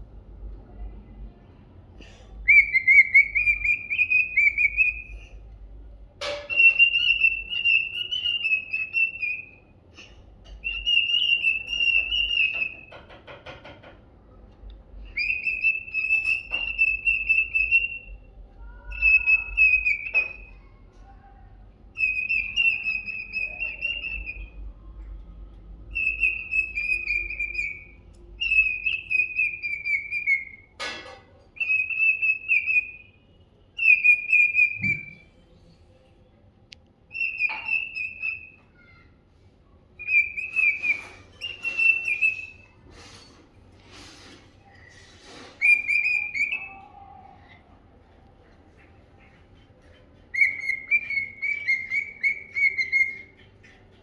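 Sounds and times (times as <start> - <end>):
cockatiel whistling: 2.5 - 5.2, 6.3 - 9.6, 10.6 - 13.0, 15.2 - 18.1, 18.8 - 20.5, 22.0 - 24.6, 25.9 - 30.7, 31.6 - 33.2, 33.8 - 35.3, 37.1 - 38.7, 40.0 - 42.8, 45.6 - 47.0, 50.3 - 53.5.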